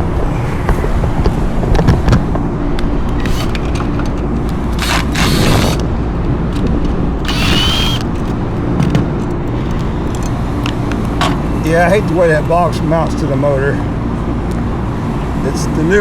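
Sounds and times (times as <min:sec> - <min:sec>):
metallic clicks and scraping: 0:03.1 - 0:05.8, 0:09.1 - 0:11.4.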